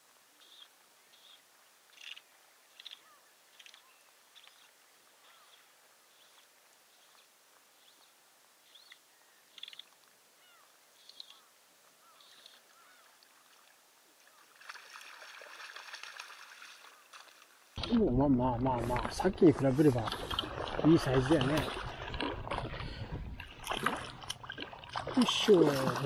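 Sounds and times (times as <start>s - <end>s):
open-air hiss: 0.0s - 17.8s.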